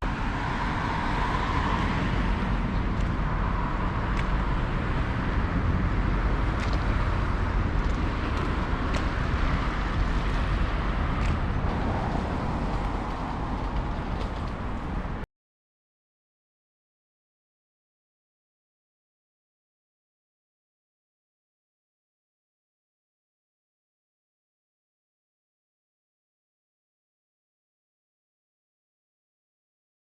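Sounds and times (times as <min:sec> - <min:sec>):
low engine rumble: 0:00.0 - 0:15.3.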